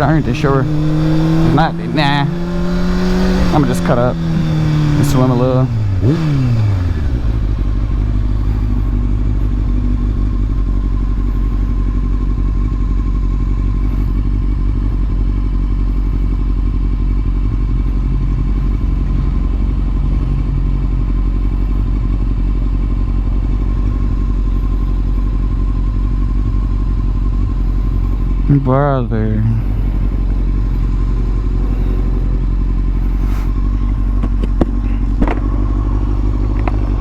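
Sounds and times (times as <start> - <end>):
motorcycle engine running steadily: 0.0 - 37.0.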